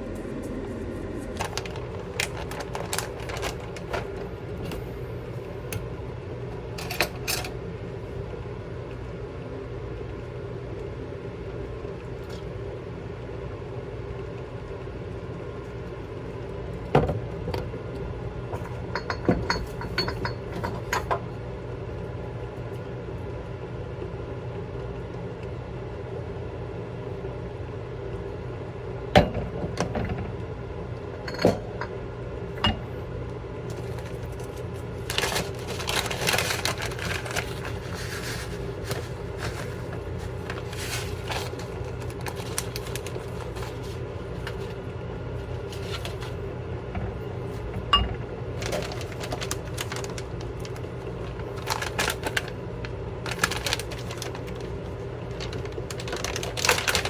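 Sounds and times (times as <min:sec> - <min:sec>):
steady hum: 0:00.0 - 0:57.0
rustling or scraping: 0:00.2 - 0:04.9, 0:33.7 - 0:44.8, 0:45.4 - 0:46.4, 0:48.6 - 0:52.6, 0:53.3 - 0:54.7.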